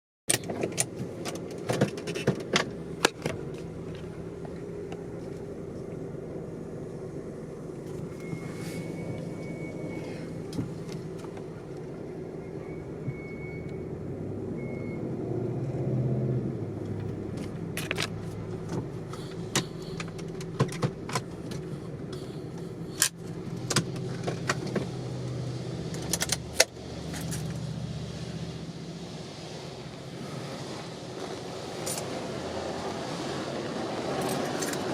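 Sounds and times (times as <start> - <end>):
car engine idling: 0.8 - 15.0, 16.8 - 34.9
faint high beep: 8.1 - 10.3, 12.4 - 13.9, 14.6 - 15.1.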